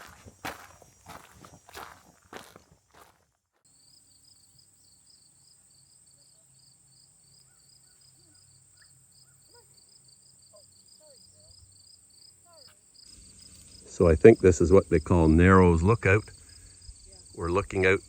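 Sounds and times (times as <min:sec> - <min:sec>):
footsteps on trail: 0:00.0 - 0:03.7
insects buzzing and chirping: 0:00.0 - 0:18.0
faint bird chirps: 0:06.2 - 0:11.8.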